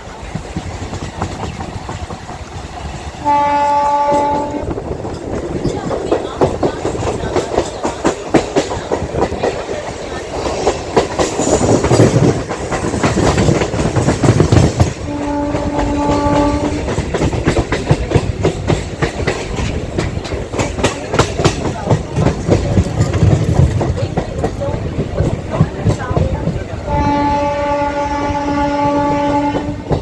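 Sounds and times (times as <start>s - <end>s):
train wheels clattering: 0.0s - 30.0s
train horn blast: 3.2s - 4.8s, 15.0s - 17.0s, 26.8s - 30.0s.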